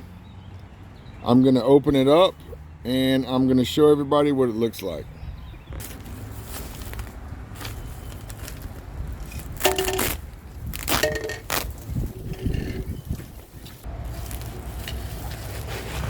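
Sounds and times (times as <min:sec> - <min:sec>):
bag tearing: 0:05.8 - 0:13.0, 0:14.0 - 0:16.0
feed bag rustling and scraping: 0:05.8 - 0:16.0.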